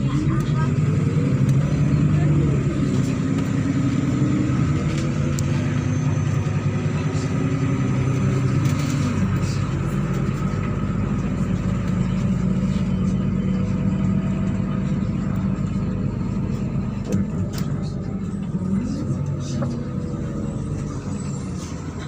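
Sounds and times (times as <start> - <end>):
bus diesel engine running: 0.0 - 22.0
road noise: 0.0 - 22.0.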